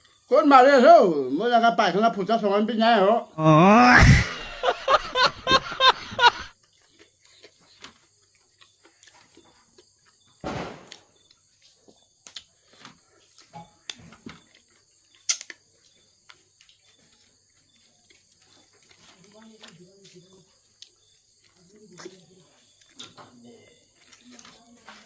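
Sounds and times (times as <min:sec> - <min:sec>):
person speaking: 0:01.4 - 0:06.5
chewing and mouth smacks: 0:06.6 - 0:10.3, 0:12.2 - 0:19.4, 0:20.7 - 0:23.2.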